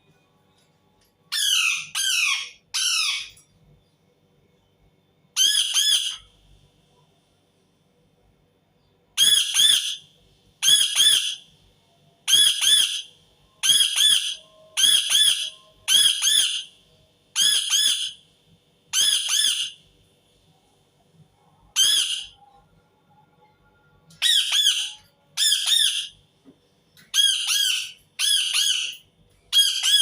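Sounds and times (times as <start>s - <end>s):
parakeet screeching: 1.3s - 3.4s, 5.4s - 6.2s, 9.2s - 10.0s, 10.6s - 11.4s, 12.3s - 16.7s, 17.4s - 18.2s, 18.9s - 19.8s, 21.7s - 22.4s, 24.2s - 26.2s, 27.1s - 30.0s.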